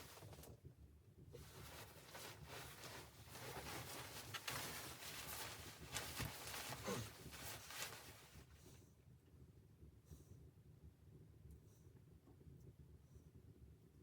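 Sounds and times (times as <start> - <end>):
rustling and scraping handling noise: 0.0 - 0.6, 1.4 - 8.5.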